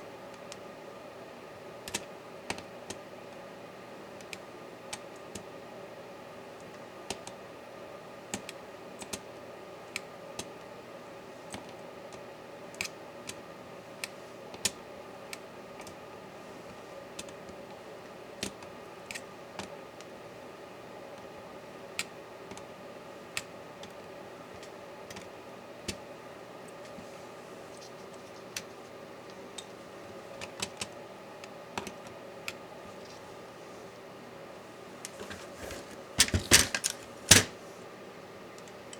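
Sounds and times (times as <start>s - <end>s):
hand tools clicking and tapping: 35.1s - 37.5s.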